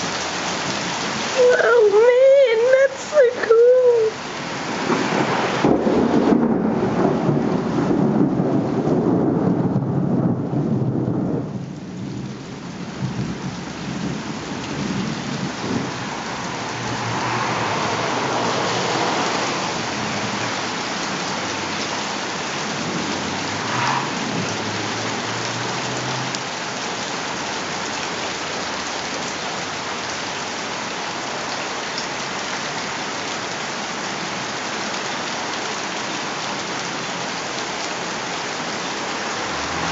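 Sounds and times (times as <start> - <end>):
heavy rain: 0.0 - 39.9
thunder rumbling: 4.7 - 21.8, 22.4 - 26.2.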